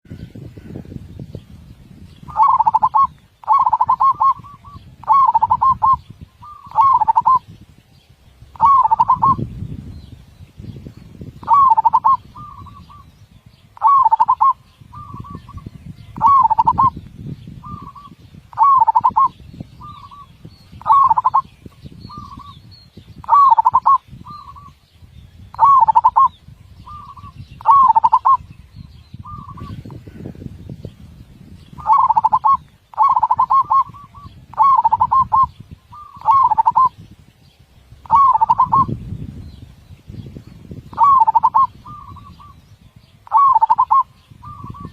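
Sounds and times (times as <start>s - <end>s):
dove cooing: 2.3s - 7.4s, 8.5s - 9.4s, 11.4s - 13.1s, 13.8s - 15.6s, 16.2s - 17.0s, 17.6s - 21.5s, 23.2s - 24.7s, 25.6s - 26.3s, 26.9s - 28.4s, 31.8s - 37.0s, 38.0s - 38.9s, 40.9s - 42.6s, 43.2s - 44.9s.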